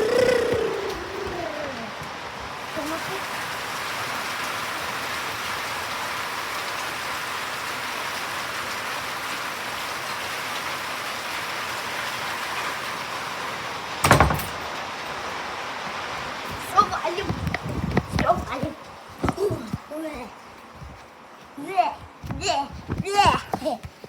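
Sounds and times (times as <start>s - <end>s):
heavy rain pattering: 0.0s - 24.0s
loud sharp knocks: 14.0s - 14.6s.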